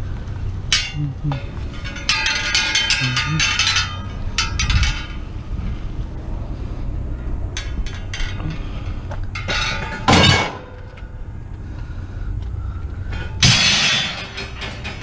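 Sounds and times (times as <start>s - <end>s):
scrap metal clinks and knocks: 0.7s - 5.9s, 7.5s - 11.2s, 13.1s - 15.0s
metallic crashes: 0.7s - 6.1s, 7.5s - 11.0s, 13.1s - 15.0s.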